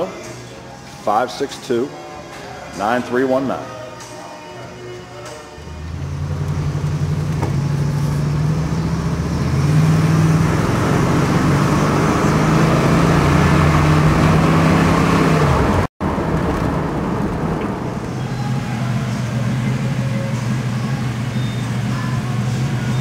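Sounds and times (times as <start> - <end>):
road noise: 4.8 - 23.0
car engine running: 5.8 - 23.0.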